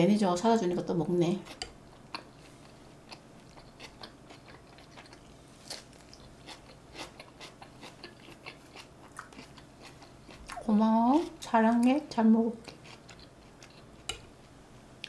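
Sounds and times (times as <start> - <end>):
mouth chewing: 1.4 - 10.7.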